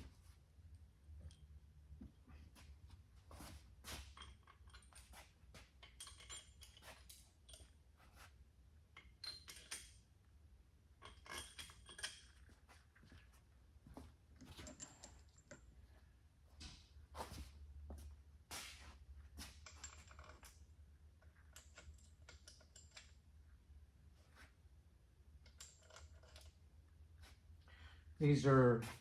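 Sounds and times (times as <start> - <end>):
metallic clinks of bolts and washers: 3.9 - 7.8, 9.0 - 10.1, 11.0 - 12.5.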